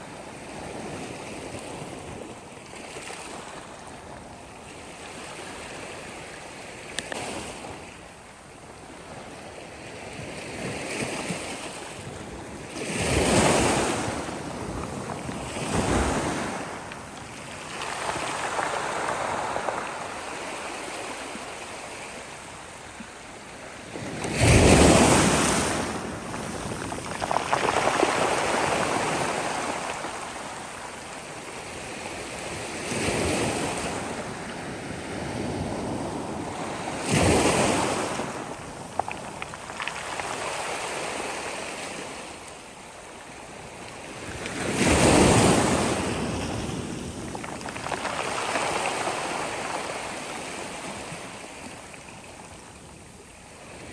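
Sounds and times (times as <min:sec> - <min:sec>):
sea waves breaking on shore: 0:10.4 - 0:42.5, 0:44.1 - 0:52.8.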